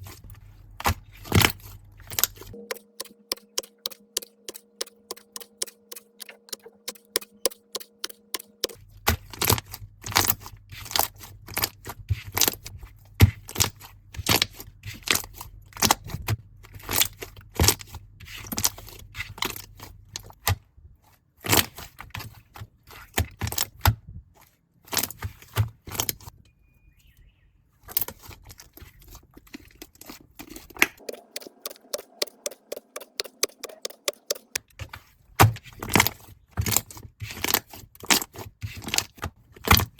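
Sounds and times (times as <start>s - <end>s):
slime squeezed with clicking pops: 31.0s - 34.6s.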